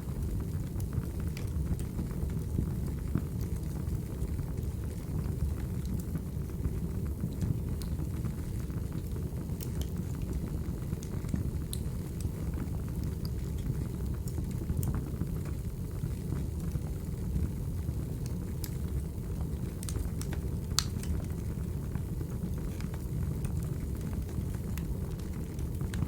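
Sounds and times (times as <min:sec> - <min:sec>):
burning logs rumbling: 0:00.0 - 0:26.0
fire popping and snapping: 0:00.0 - 0:26.0.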